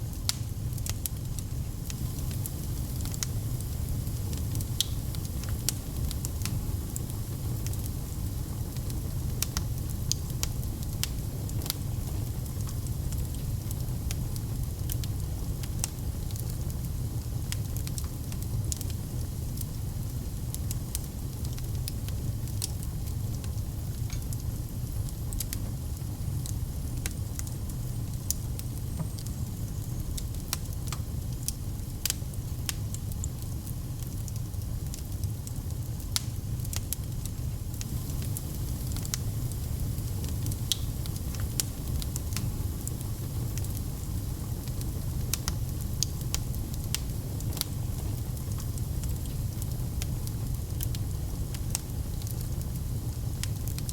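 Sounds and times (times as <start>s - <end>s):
low rumble of flames: 0.0s - 53.9s
wood fire crackling and popping: 0.0s - 53.9s.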